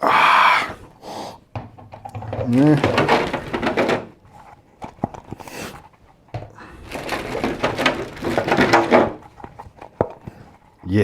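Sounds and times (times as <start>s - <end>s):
person sniffing: 0.0s - 1.4s, 5.4s - 5.8s
plastic packaging crinkling: 6.8s - 10.1s.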